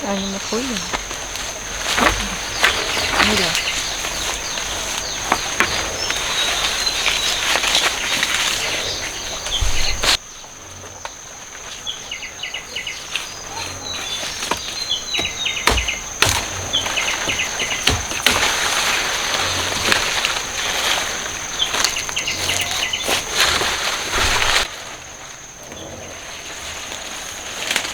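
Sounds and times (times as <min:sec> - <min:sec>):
birds chirping: 0:00.0 - 0:24.6
leaves and stalks rustling: 0:00.0 - 0:27.9
sharp knocks: 0:14.5 - 0:18.9.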